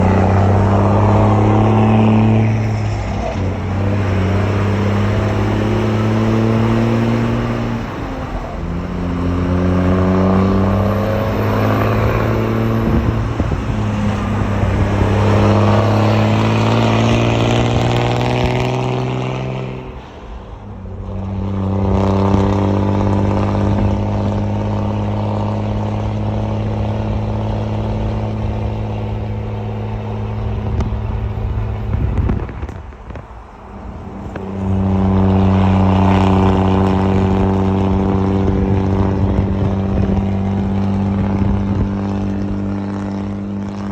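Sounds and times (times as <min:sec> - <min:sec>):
truck diesel engine running: 0:00.0 - 0:18.8.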